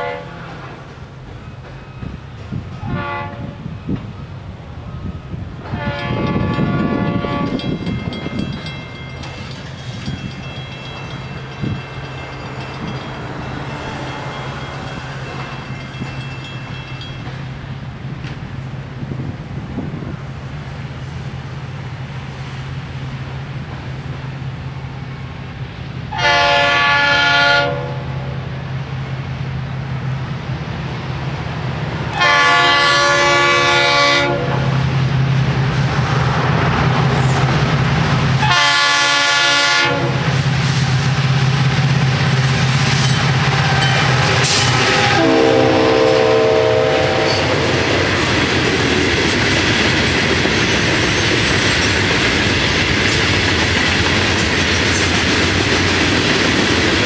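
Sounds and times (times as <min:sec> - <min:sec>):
train horn blasts: 0:00.0 - 0:00.8, 0:02.8 - 0:03.8, 0:05.6 - 0:07.8, 0:26.1 - 0:28.4, 0:32.1 - 0:34.8, 0:38.4 - 0:40.3, 0:43.5 - 0:48.0
train wheels rumbling and clattering: 0:00.0 - 0:27.4, 0:28.0 - 0:57.0.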